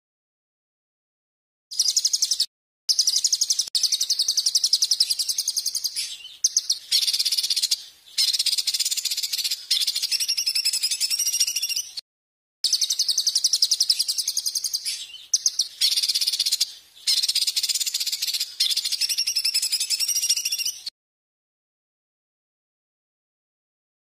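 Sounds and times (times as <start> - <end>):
songbird trilling: 1.7 - 12.0, 12.7 - 20.9.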